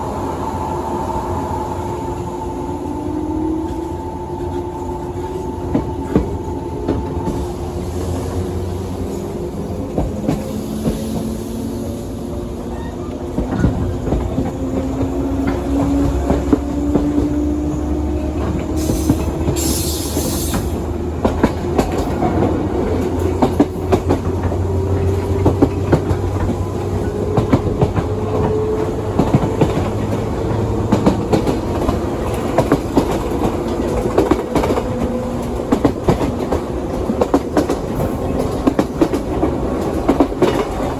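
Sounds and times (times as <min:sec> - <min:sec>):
train wheels clattering over joints: 0:13.3 - 0:40.9
hiss: 0:18.8 - 0:20.8.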